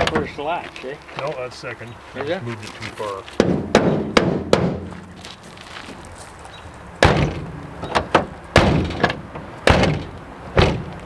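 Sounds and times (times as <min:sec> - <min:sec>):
car door slamming: 0:00.0 - 0:00.4, 0:07.0 - 0:11.0.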